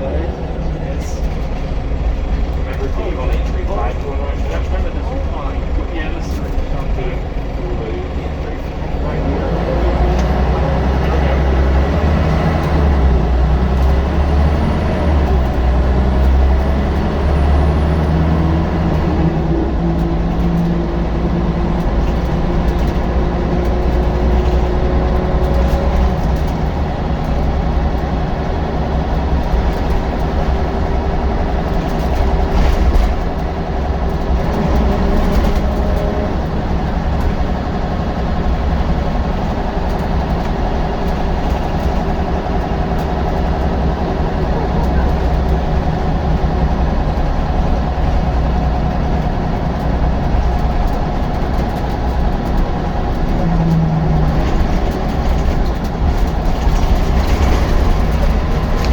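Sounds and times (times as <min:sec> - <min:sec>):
bus diesel engine droning: 0:00.0 - 0:58.9.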